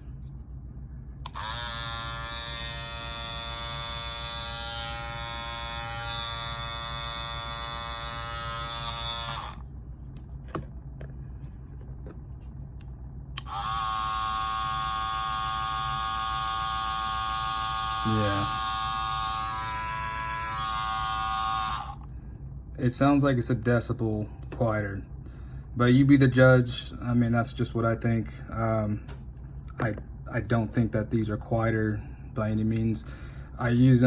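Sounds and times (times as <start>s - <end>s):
hair clippers buzzing: 1.2s - 9.6s, 13.4s - 22.1s.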